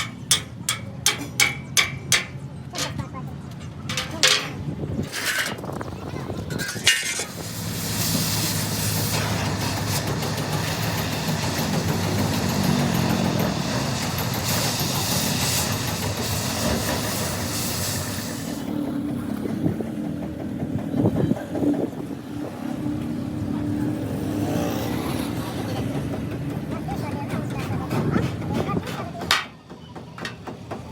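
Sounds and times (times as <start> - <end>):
truck engine running: 0.0 - 30.9
hiss: 6.8 - 19.0.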